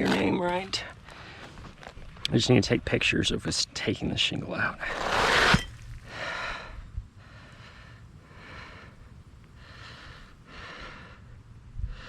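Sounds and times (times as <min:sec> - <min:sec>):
person breathing: 0:06.0 - 0:12.0.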